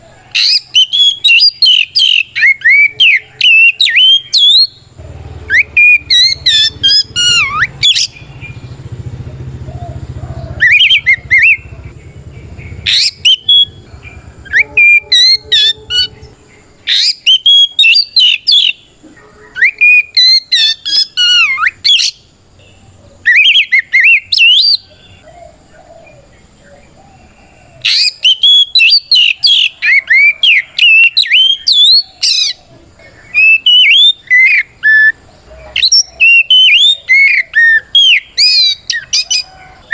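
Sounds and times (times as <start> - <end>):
bird singing whistled phrases: 0.3 - 4.8, 5.5 - 8.7, 10.6 - 11.7, 12.7 - 18.8, 19.4 - 22.2, 23.2 - 25.2, 27.9 - 32.6, 33.3 - 35.2, 35.8 - 39.9.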